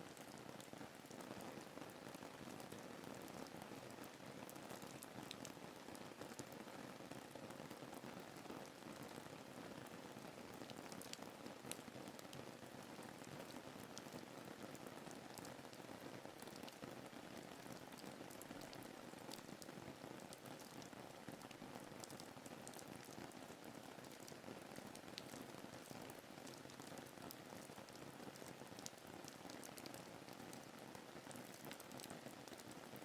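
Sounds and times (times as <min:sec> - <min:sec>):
faint rain hiss: 0:00.0 - 0:33.0
raindrop ticks: 0:27.6 - 0:30.0, 0:31.4 - 0:32.7.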